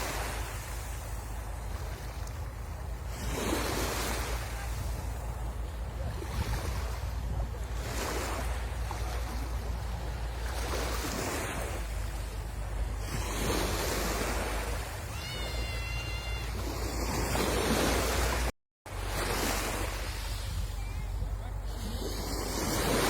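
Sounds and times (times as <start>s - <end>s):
sea waves breaking on beach: 0.0s - 23.0s
wind on microphone: 0.0s - 23.0s
short high call: 15.0s - 17.0s.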